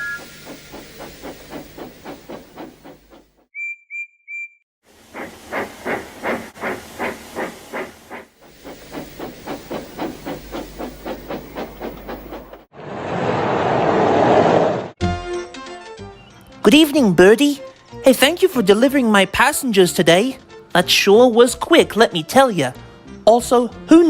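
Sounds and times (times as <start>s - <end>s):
steam whistle peeps: 0.0s - 1.4s
rush of escaping steam: 0.0s - 3.5s, 4.9s - 12.7s
steam locomotive chuffing: 0.0s - 3.5s, 4.9s - 12.7s.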